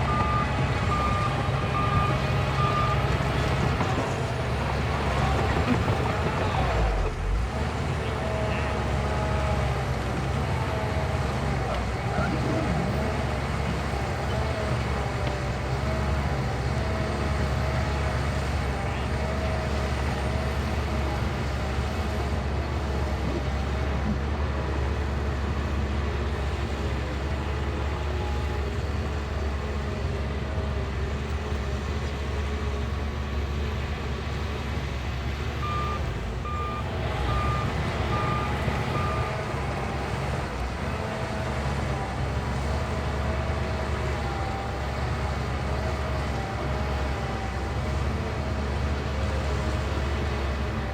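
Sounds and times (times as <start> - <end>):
reversing alarm beeping: 0.0 - 3.8, 35.6 - 39.8
bulldozer diesel engine running: 0.0 - 50.9.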